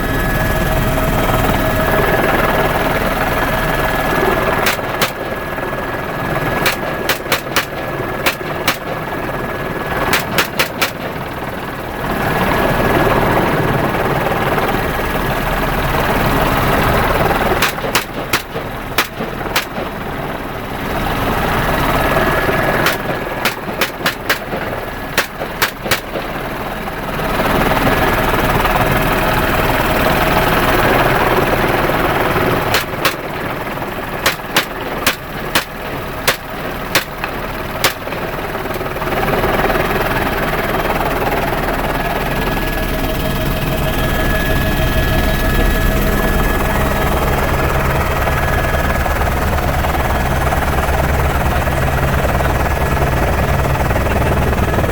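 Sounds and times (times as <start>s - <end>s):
helicopter rotor and engine: 0.0s - 54.9s
rifle shots: 4.6s - 5.6s, 6.4s - 11.7s, 17.5s - 20.5s, 22.6s - 26.7s, 32.6s - 38.8s.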